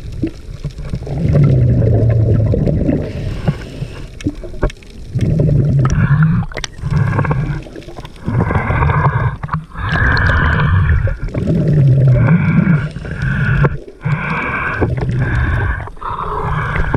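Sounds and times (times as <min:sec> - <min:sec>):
scuba regulator bubbling exhaust: 0:00.0 - 0:16.9.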